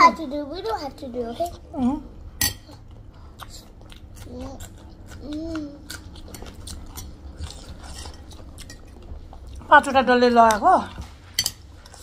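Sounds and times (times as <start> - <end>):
wet chewing of noodles: 2.7 - 9.7.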